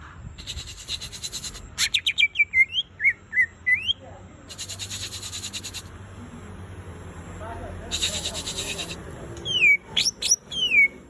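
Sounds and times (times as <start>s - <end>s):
bird chattering: 0.4s - 5.9s, 7.9s - 11.0s
bird whistling upward notes: 9.4s - 11.0s.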